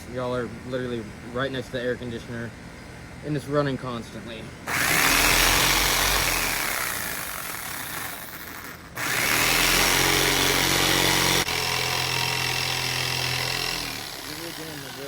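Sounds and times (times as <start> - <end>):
circular saw cutting plywood: 4.7 - 15.0.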